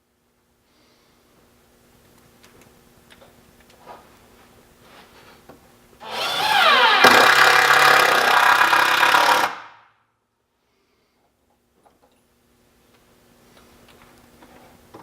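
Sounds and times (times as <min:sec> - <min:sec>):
power drill driving screw into wood: 0:06.0 - 0:09.8.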